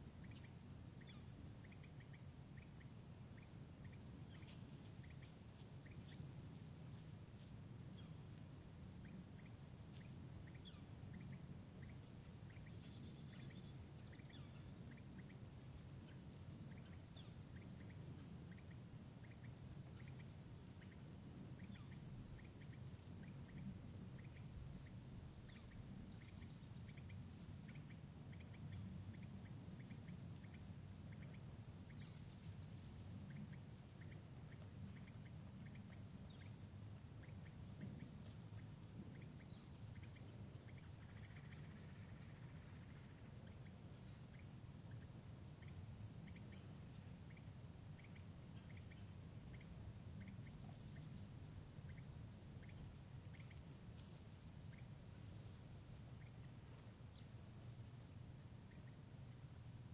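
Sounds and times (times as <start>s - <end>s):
steady low rumble: 0.0s - 59.9s.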